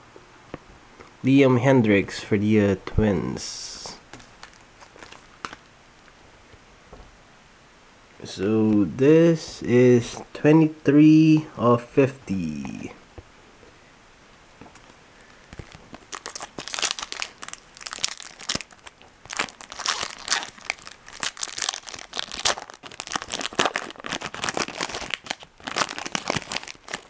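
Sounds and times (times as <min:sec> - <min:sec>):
foil wrapper crinkling and tearing: 0:04.1 - 0:05.7, 0:14.7 - 0:27.0.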